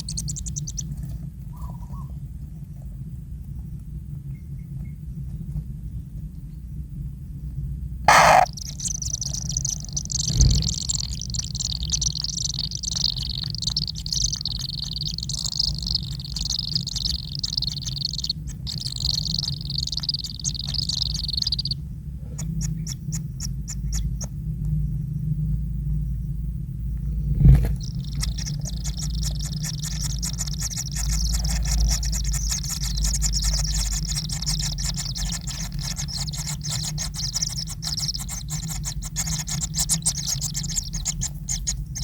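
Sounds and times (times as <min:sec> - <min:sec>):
high ticks: 0:00.0 - 0:01.0, 0:08.1 - 0:21.8, 0:22.4 - 0:24.4, 0:27.7 - 0:42.0
nestlings chattering: 0:00.0 - 0:02.0, 0:08.1 - 0:24.3, 0:27.6 - 0:42.0.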